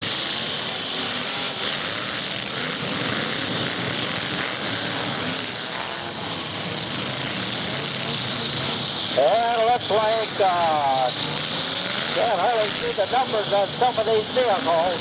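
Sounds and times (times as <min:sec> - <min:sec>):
truck engines running together: 0:00.0 - 0:15.0.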